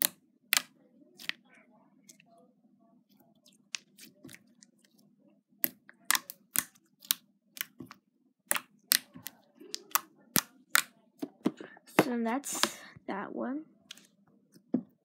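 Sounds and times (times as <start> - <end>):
slime clicking and popping: 5.6 - 10.9.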